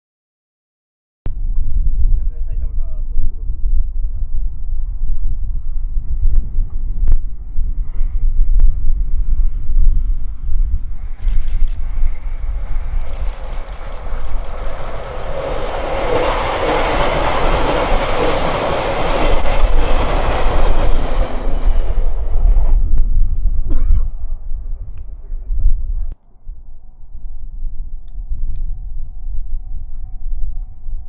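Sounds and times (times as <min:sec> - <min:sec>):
train passing: 0:07.4 - 0:23.6.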